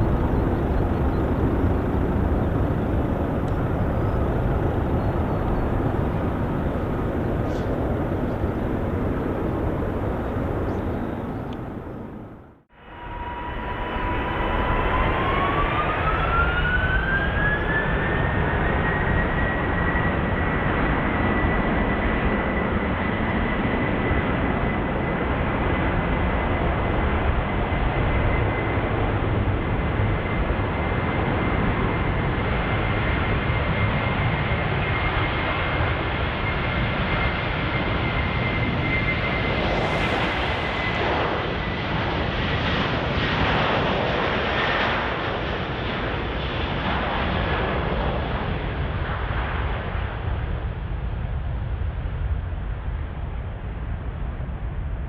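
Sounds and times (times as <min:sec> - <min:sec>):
jet engines spooling up: 0:00.1 - 0:20.5, 0:31.7 - 0:46.0.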